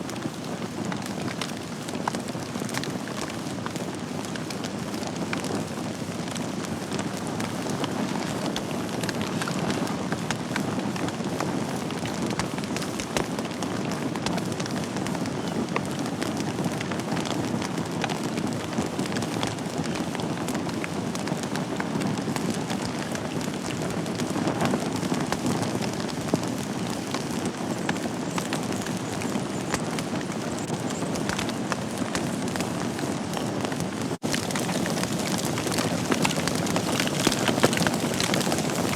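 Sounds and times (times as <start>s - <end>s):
fire crackling and popping: 0.0s - 38.9s
rush of flames: 0.1s - 38.9s.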